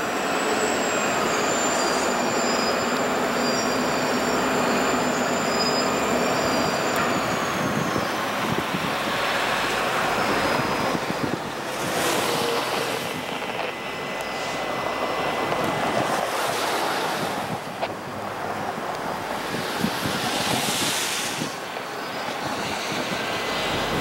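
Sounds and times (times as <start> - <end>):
faint high wheel squeal: 0.0 - 11.4, 12.0 - 17.1, 20.6 - 24.0
distant diesel locomotive rumble: 0.0 - 24.0
wind and rain on microphone: 7.0 - 24.0.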